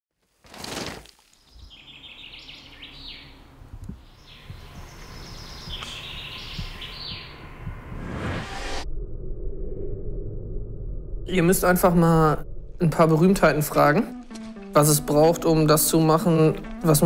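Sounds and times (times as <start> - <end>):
songbird trilling: 1.5 - 3.4, 4.0 - 7.5
low steady rumble: 3.3 - 14.3
whoosh: 7.2 - 13.1.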